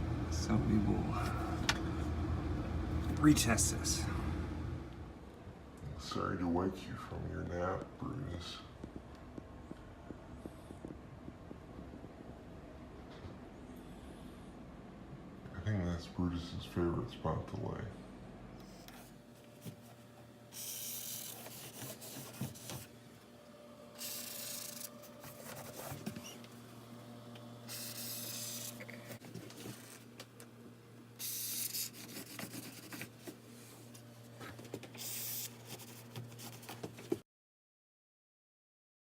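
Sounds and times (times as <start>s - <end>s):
low steady hum: 0.0s - 20.5s.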